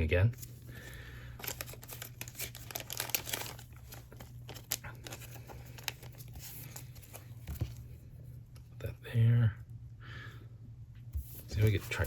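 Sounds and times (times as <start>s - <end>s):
cards and packaging rustling: 0.3s - 8.0s, 11.3s - 12.0s.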